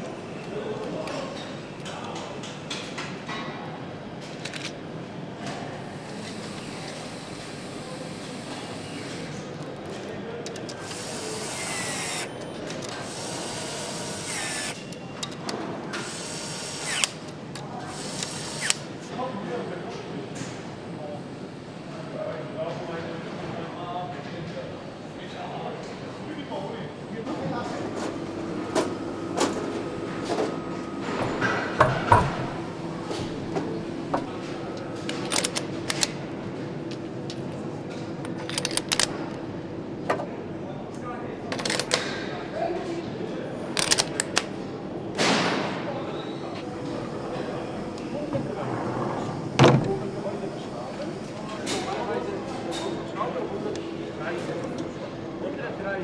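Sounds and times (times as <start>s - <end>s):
steady background hum: 0.0s - 56.0s
clicks and knocks of parts and tools: 4.3s - 4.8s, 35.0s - 36.2s, 38.2s - 39.2s, 41.5s - 42.1s
power tool running in bursts: 10.8s - 12.3s, 13.0s - 14.8s, 16.0s - 17.2s.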